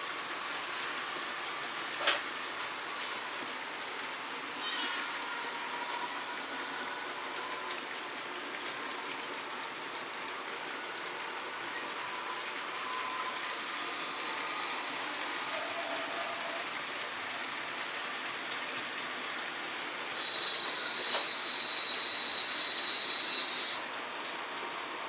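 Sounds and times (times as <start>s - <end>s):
model trains whirring on track: 0.0s - 25.0s
faint thin squeals: 4.6s - 6.3s, 20.1s - 23.9s.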